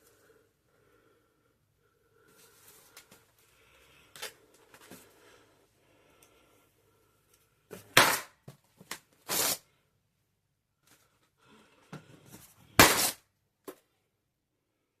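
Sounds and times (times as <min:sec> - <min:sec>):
balloons popping: 0:07.8 - 0:08.5, 0:12.7 - 0:13.2
balloon rubbing and handling: 0:09.2 - 0:09.8.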